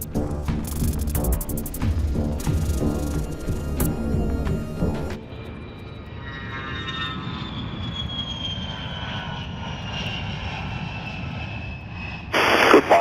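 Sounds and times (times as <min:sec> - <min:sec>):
jet aircraft passing: 0:04.4 - 0:13.0.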